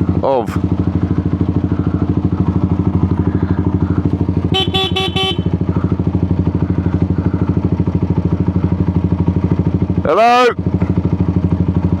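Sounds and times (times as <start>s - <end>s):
motorcycle engine idling: 0.0s - 12.0s
horn short toots: 4.4s - 5.8s.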